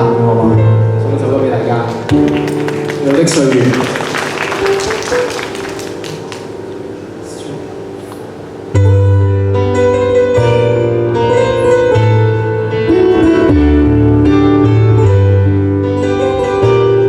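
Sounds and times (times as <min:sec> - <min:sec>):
keyboard chords: 0:00.0 - 0:17.0
deep bass line: 0:12.0 - 0:16.0.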